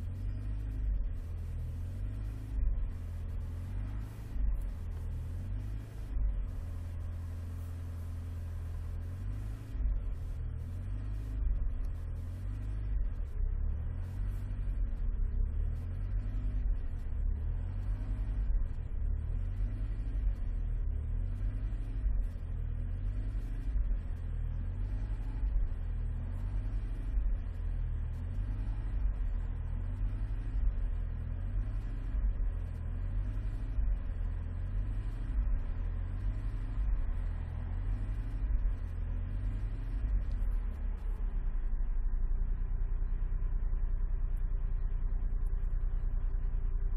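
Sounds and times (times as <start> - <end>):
car engine and road rumble: 0.0 - 46.9.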